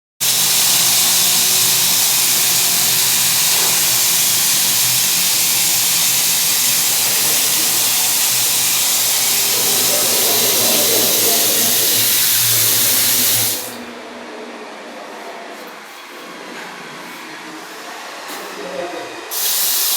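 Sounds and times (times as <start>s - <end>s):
water spraying from tap: 0.2s - 13.8s, 19.3s - 19.9s.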